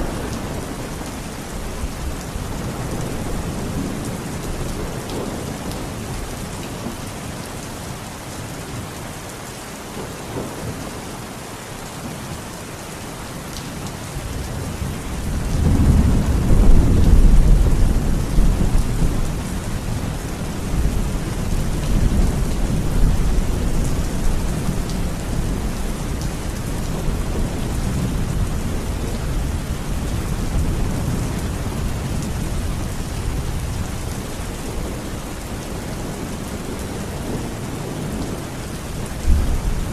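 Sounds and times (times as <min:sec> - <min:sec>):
steady rain falling: 0:00.0 - 0:39.9
thunder rumbling: 0:14.3 - 0:39.9.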